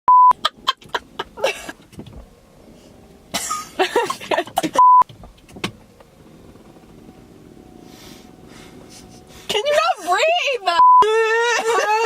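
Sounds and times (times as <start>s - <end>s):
loud steady beep: 0.1s - 0.4s, 4.8s - 5.1s, 10.8s - 11.1s.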